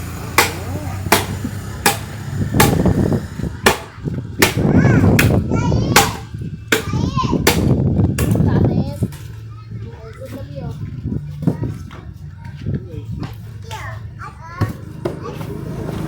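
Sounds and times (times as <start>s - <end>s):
voices calling: 0.0s - 16.0s
hard strikes on wood: 0.3s - 8.5s.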